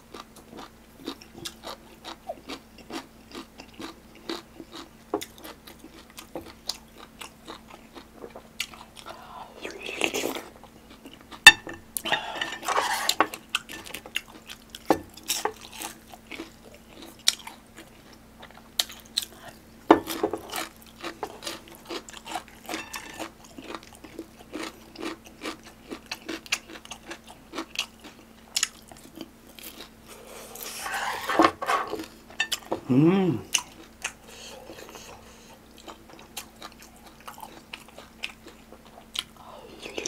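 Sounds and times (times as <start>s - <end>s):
close-miked chewing: 0.1s - 31.0s, 31.9s - 40.0s.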